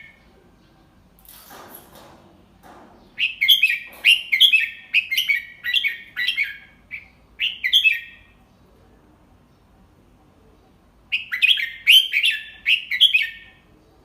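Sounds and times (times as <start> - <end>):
bulbul singing whistled phrases: 3.2 - 8.3, 11.1 - 13.6.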